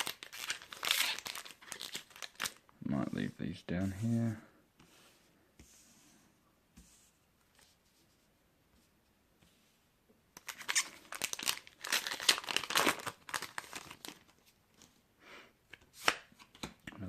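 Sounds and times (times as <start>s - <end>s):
foil wrapper tearing and crinkling: 0.0s - 2.6s, 10.4s - 14.4s.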